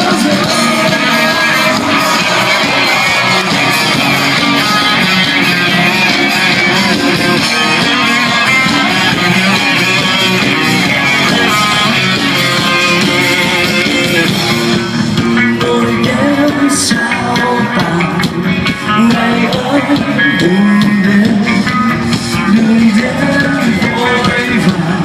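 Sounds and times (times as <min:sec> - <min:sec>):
electric guitar: 0:00.0 - 0:25.0
live rock band playing: 0:00.0 - 0:25.0.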